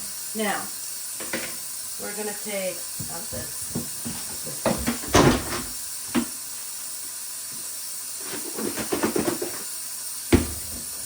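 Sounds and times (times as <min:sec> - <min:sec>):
steady hiss: 0:00.0 - 0:11.0
kitchen things knocking and clattering: 0:01.2 - 0:01.6, 0:03.0 - 0:06.3, 0:08.4 - 0:09.6, 0:10.3 - 0:10.9.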